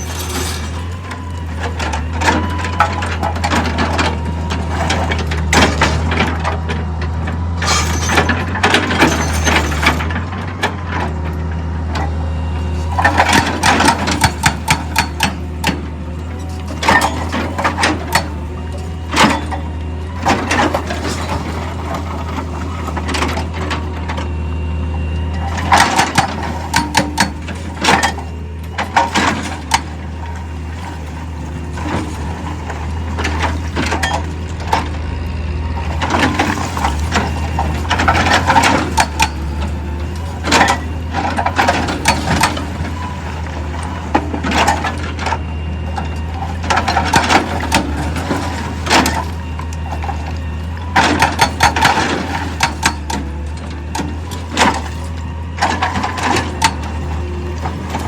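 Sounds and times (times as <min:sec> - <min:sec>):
heavy machinery drone: 0:00.0 - 0:58.0.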